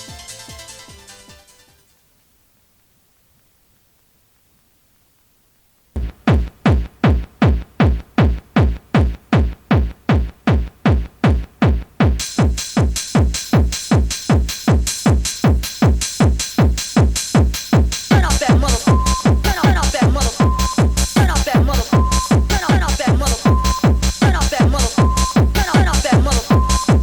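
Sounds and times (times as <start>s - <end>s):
drum machine kick drum: 6.0s - 27.0s
hissing hi-hat and cymbal: 12.2s - 27.0s.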